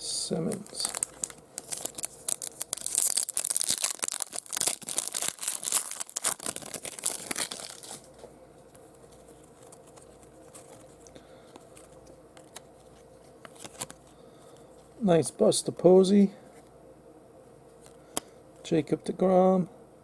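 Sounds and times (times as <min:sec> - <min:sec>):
faint room hum: 0:00.0 - 0:20.0
foil wrapper tearing and crinkling: 0:00.4 - 0:08.1.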